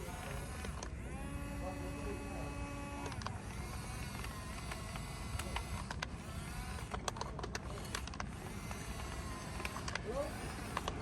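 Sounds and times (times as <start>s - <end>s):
sharp clicks: 2.9s - 11.0s
plastic toys clicking and clattering: 3.0s - 11.0s.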